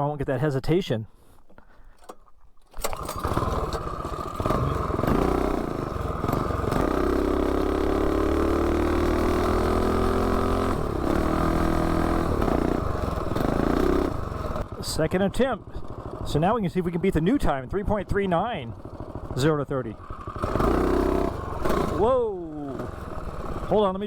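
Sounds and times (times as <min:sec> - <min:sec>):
small engine revving: 0:02.8 - 0:14.8, 0:18.1 - 0:24.0.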